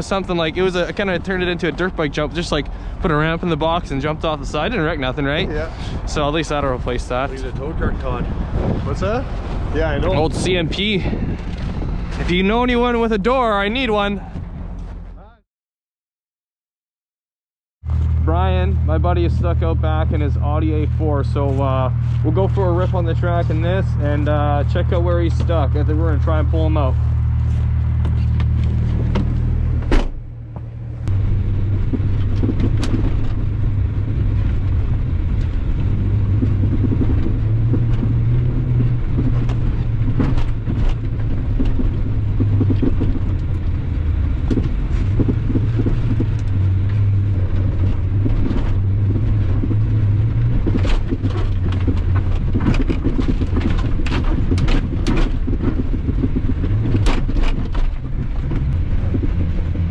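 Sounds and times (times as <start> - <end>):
car engine revving: 0.0 - 14.7, 17.9 - 59.9
knocks and rattles from bumps: 28.0 - 59.9.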